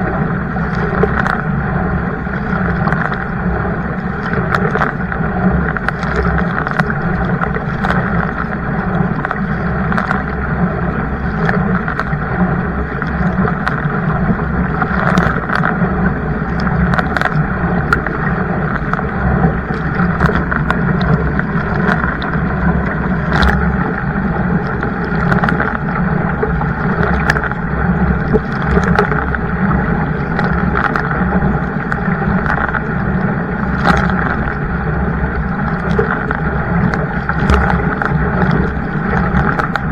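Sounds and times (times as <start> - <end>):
short splashes: 0.0 - 39.9
water rushing around kayak: 0.0 - 39.9
wind on microphone: 0.0 - 39.9.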